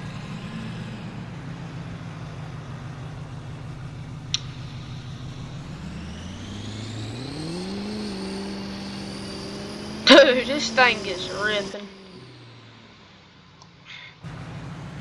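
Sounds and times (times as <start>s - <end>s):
truck engine idling and revving: 0.0s - 15.0s
high whine: 2.1s - 13.6s.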